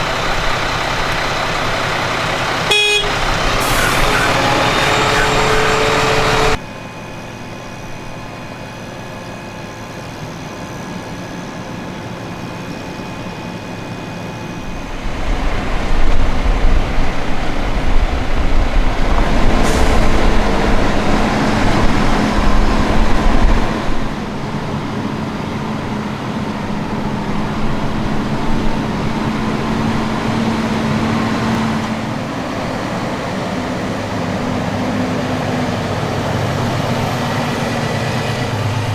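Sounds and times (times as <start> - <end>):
tractor engine rumbling: 0.0 - 6.6, 14.6 - 38.9.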